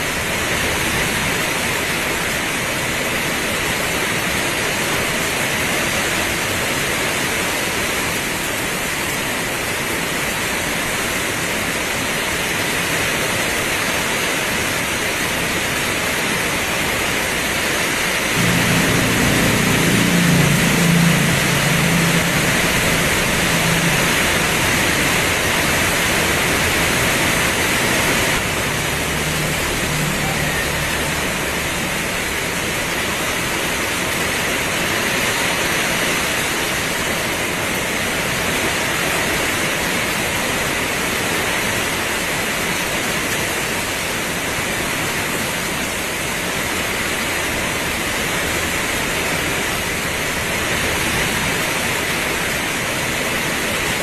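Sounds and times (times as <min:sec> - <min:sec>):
heavy rain pouring: 0:00.0 - 0:54.0
low hum: 0:18.4 - 0:33.5.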